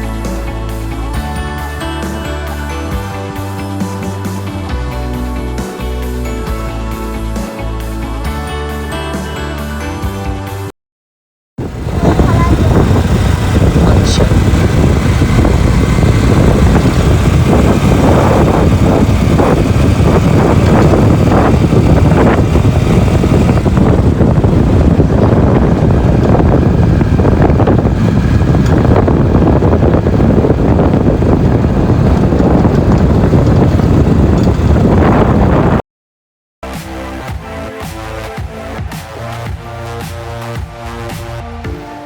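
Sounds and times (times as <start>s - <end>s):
vehicle rumbling: 11.6s - 35.8s
wind buffeting microphone: 11.6s - 35.8s.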